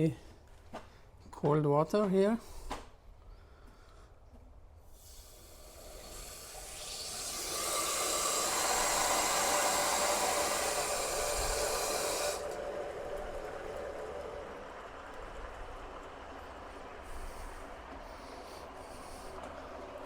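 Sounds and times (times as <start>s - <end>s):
water rushing through pipe: 5.0s - 20.0s.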